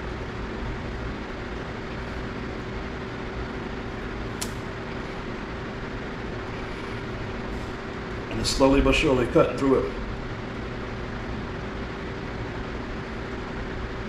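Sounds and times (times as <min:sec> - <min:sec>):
sharp click: 0:04.4 - 0:04.7.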